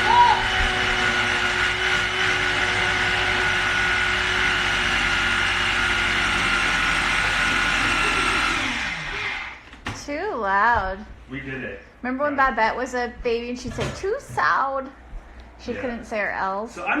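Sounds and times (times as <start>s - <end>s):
food processor motor whirring: 0.0s - 9.6s.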